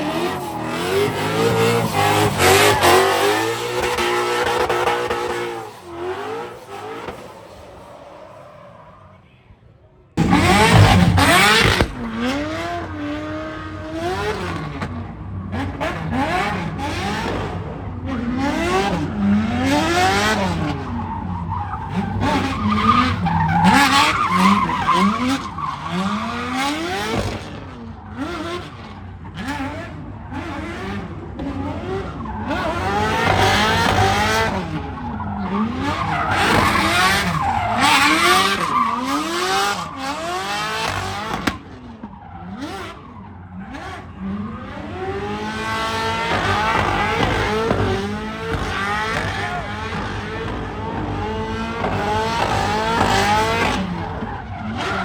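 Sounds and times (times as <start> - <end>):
car engines revving: 0.0 - 55.0
tyres squealing: 32.6 - 41.1.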